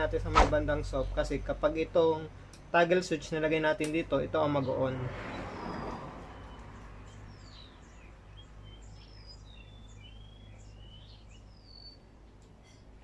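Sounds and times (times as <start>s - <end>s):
steady low hum: 0.0s - 4.6s
small birds chirping: 0.7s - 13.0s.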